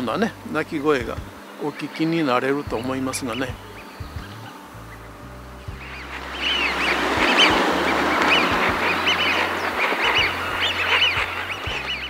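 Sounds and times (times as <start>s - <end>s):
flock of ducks whistling calls: 5.7s - 12.0s.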